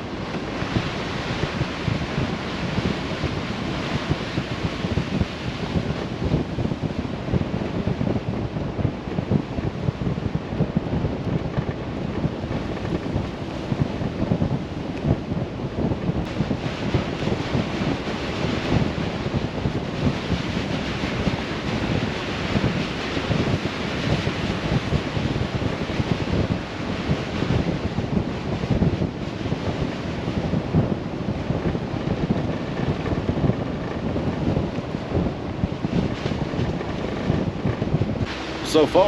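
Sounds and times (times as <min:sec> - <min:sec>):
tyres rumbling on muddy road: 0:29.3 - 0:39.0.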